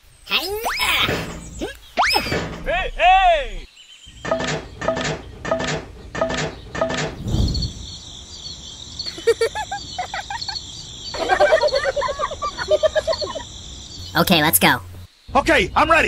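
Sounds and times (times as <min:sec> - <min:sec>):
cartoon voices chattering: 0:14.1 - 0:15.0.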